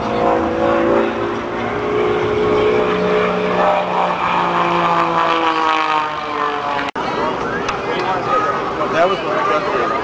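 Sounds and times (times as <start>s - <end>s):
aircraft engine drone passing overhead: 0.0s - 10.0s.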